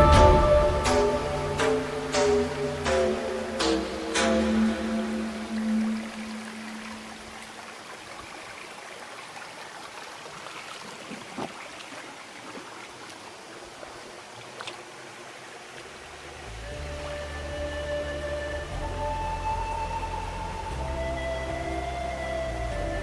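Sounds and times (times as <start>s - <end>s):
stream water flowing: 0.0s - 23.0s.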